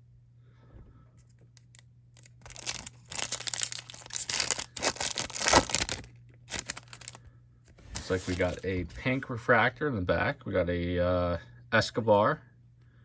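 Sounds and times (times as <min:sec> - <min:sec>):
foil wrapper crinkling: 0:01.6 - 0:07.2, 0:07.8 - 0:08.7.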